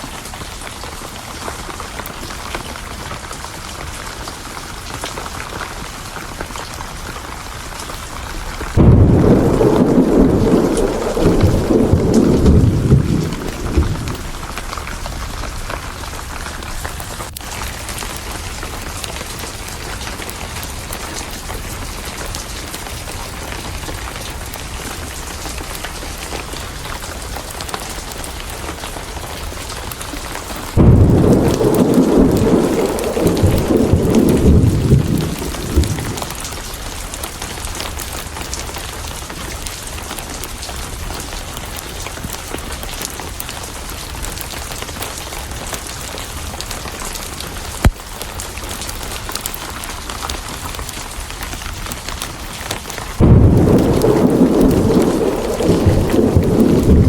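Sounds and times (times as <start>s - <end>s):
steady rain: 0.0s - 57.0s
thunder rumbling: 7.7s - 18.6s, 28.5s - 38.6s, 52.9s - 57.0s.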